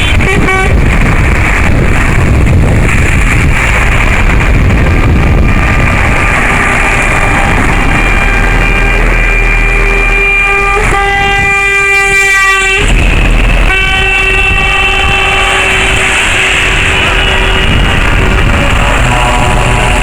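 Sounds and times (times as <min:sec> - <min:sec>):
lorry air horn blasts: 0:00.0 - 0:00.8, 0:06.6 - 0:20.0
steady low rumble: 0:00.0 - 0:20.0.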